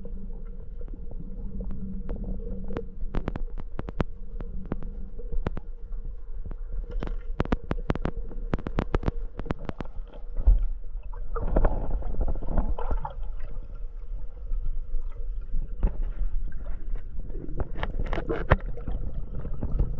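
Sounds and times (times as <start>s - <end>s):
gurgling water: 0.0s - 19.9s
low underwater rumble: 0.0s - 19.9s
sharp clicks and ticks: 3.1s - 5.7s, 7.0s - 10.0s.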